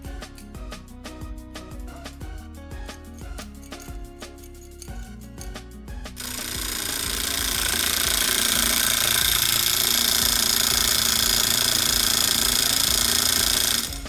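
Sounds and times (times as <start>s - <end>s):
electric motor whir and rattle: 6.2s - 14.0s.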